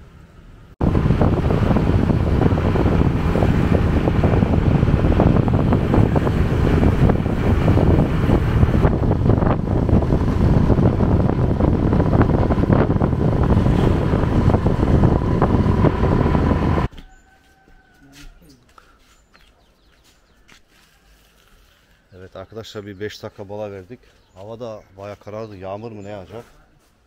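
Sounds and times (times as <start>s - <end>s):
wind buffeting microphone: 0.8s - 16.9s.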